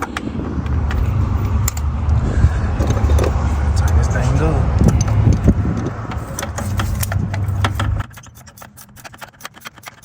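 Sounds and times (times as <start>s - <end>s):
low rumble: 0.0s - 8.0s
ratchet wrench clicking: 4.8s - 10.0s.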